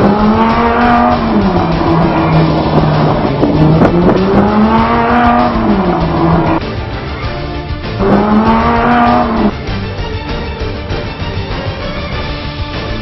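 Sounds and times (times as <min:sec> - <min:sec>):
car engine revving: 0:00.0 - 0:06.7, 0:07.8 - 0:09.7.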